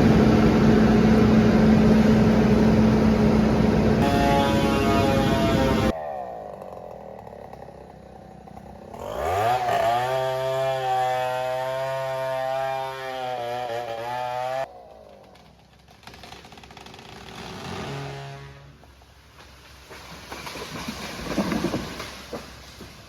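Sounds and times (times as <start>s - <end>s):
engine revving: 0.0s - 14.7s, 16.0s - 18.8s.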